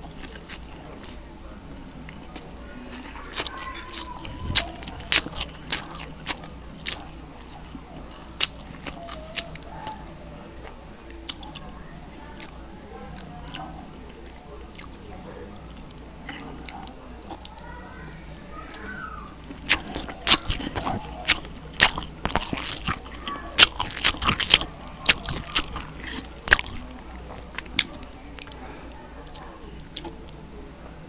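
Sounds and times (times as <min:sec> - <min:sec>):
person chewing noodles: 0:00.0 - 0:01.2, 0:02.0 - 0:10.0, 0:11.3 - 0:11.7, 0:12.4 - 0:13.9, 0:14.7 - 0:17.6, 0:19.4 - 0:28.6, 0:29.2 - 0:30.4.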